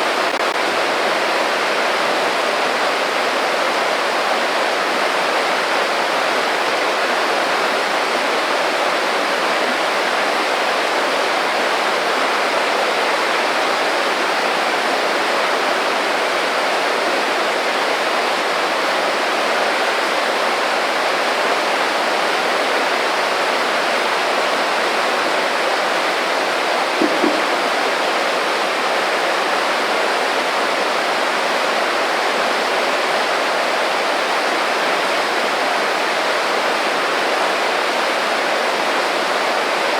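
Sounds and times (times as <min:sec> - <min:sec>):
creek water flowing: 0:00.0 - 0:39.9
low double thump: 0:27.0 - 0:27.7.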